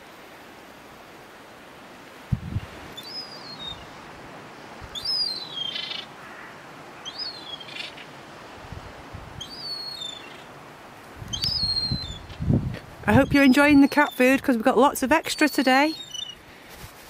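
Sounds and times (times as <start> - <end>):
bird high-pitched call: 3.0 - 3.9, 5.0 - 6.1, 7.0 - 8.1, 9.4 - 10.5, 11.3 - 12.3, 15.3 - 16.4.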